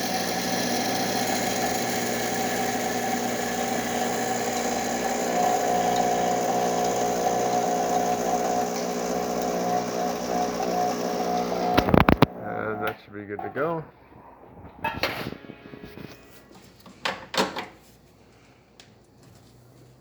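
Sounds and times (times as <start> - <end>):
espresso machine pump buzzing: 0.0 - 12.9
steady higher tone: 12.7 - 16.6.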